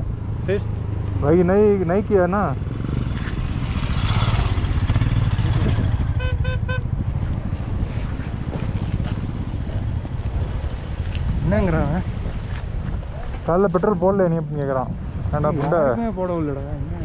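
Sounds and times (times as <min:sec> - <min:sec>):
motorcycle engine running: 0:01.7 - 0:10.8
horn beeps: 0:06.0 - 0:06.9.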